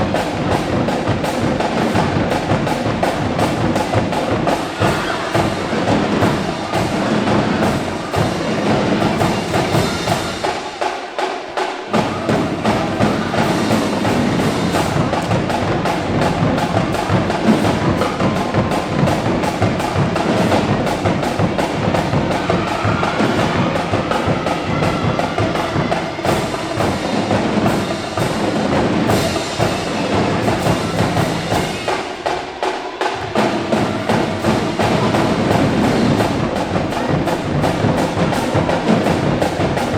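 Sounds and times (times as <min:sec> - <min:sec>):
snare drums: 0:00.0 - 0:39.9
tenor drums: 0:00.0 - 0:39.9
bass drums: 0:33.4 - 0:39.9.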